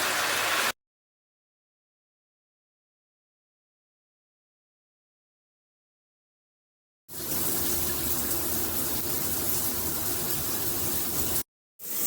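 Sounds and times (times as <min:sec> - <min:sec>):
shower water spraying: 0:00.0 - 0:00.8, 0:07.1 - 0:12.0.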